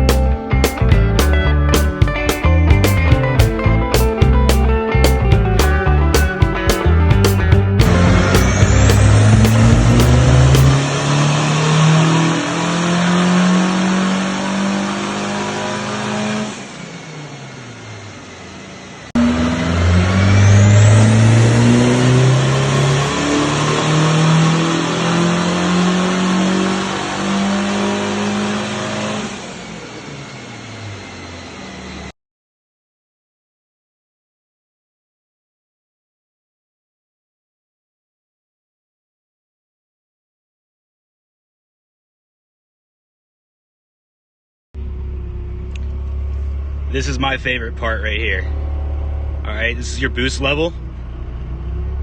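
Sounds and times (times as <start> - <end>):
turbocharged engine revving hard: 7.1 - 32.1, 46.7 - 52.0.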